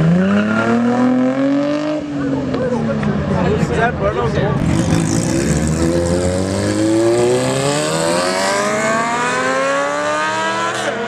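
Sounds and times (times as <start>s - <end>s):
car engine accelerating hard: 4.6s - 11.0s.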